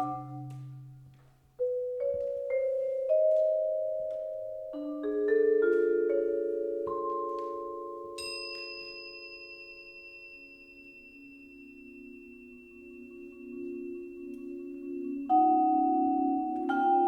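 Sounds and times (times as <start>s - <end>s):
vibraphone notes ringing: 0.0s - 17.0s
high bell-like crotale note: 8.2s - 17.0s.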